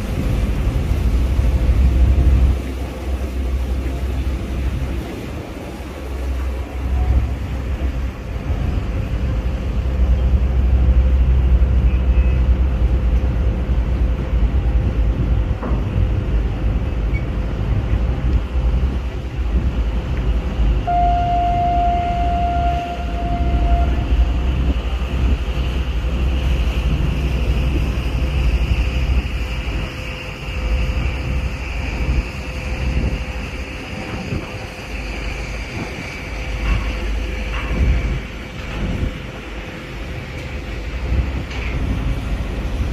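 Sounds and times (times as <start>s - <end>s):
ship's horn: 0.0s - 13.3s, 20.8s - 28.8s
ferry engines rumbling: 0.0s - 42.9s
water washing: 0.0s - 42.9s.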